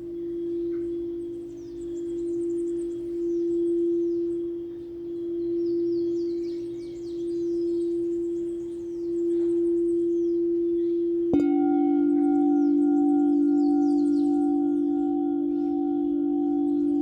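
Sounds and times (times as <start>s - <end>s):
lower singing bowl struck: 0.0s - 17.0s
singing bowl ringing: 0.0s - 17.0s.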